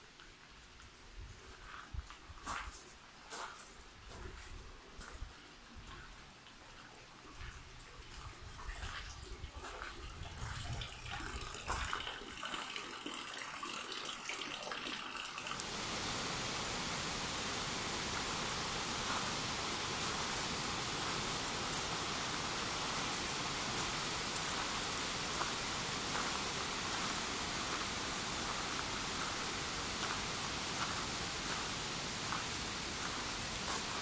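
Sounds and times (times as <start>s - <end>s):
waterfall rushing: 15.5s - 34.0s.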